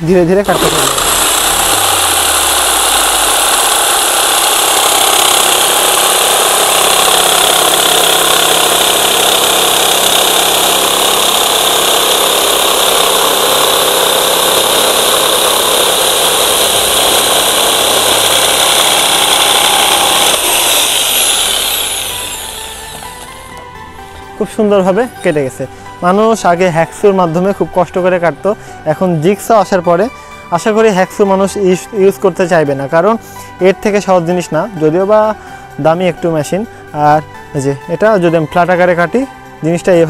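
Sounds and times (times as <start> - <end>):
electric jigsaw cutting: 0.0 - 23.7.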